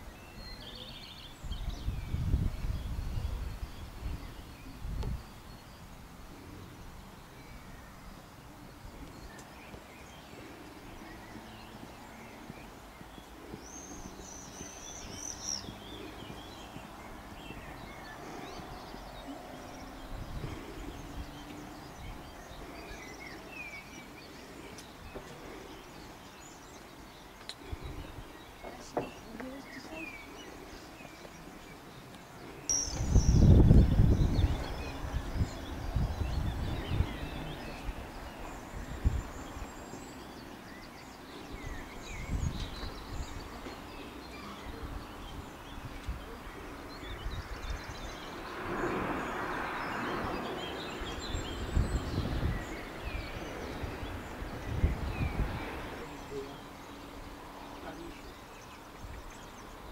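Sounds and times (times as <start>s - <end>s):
low rumbling on microphone: 0.0s - 31.6s, 32.7s - 40.2s, 40.8s - 59.5s
small birds chirping: 0.0s - 59.9s
high twittering bird: 32.7s - 35.7s.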